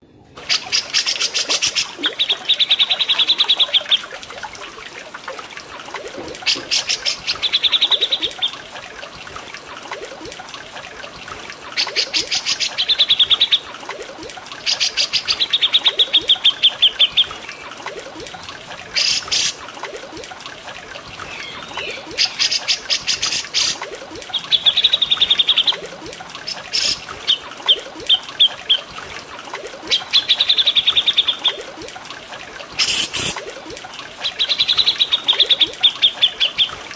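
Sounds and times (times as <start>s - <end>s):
trickling water: 0.0s - 36.9s
birds singing trills: 14.6s - 17.6s, 21.2s - 25.8s, 26.5s - 28.9s, 34.2s - 36.9s.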